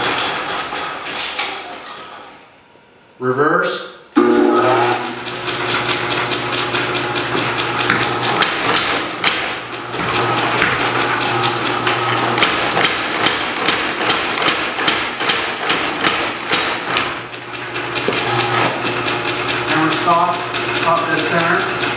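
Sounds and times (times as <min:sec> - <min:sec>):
power hammer striking anvil: 0:04.2 - 0:05.2, 0:07.9 - 0:09.6, 0:12.4 - 0:17.1.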